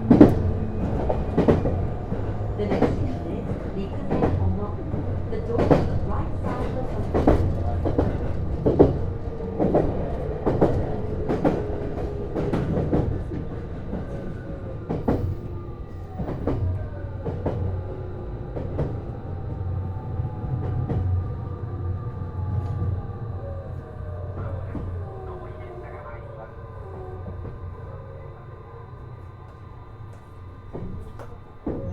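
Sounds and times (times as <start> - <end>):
train wheels clicking over rail joints: 0.0 - 17.7.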